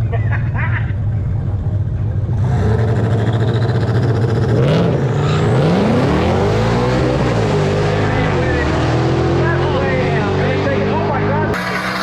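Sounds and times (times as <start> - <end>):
drag cars accelerating: 0.2 - 12.0.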